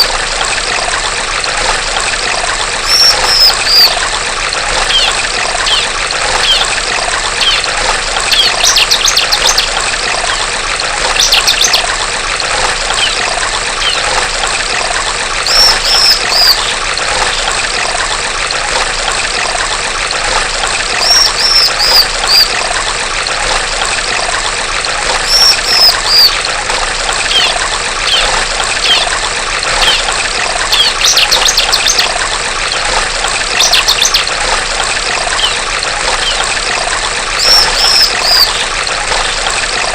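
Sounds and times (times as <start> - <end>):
flowing water trickling: 0.0 - 39.9
bird calling high notes: 2.8 - 4.0, 4.8 - 6.8, 15.5 - 16.8, 21.0 - 22.6, 25.2 - 26.4, 27.2 - 30.1, 35.3 - 36.5, 37.4 - 38.7.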